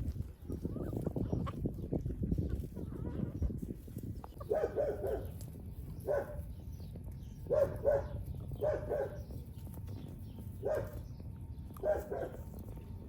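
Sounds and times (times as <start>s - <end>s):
dog barking: 4.4s - 5.3s, 6.0s - 6.4s, 7.5s - 9.2s, 10.6s - 11.0s, 11.8s - 12.4s.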